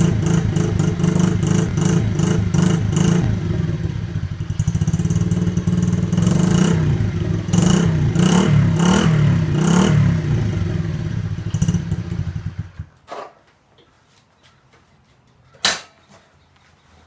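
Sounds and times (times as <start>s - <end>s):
dirt bike engine revving: 0.0s - 12.9s.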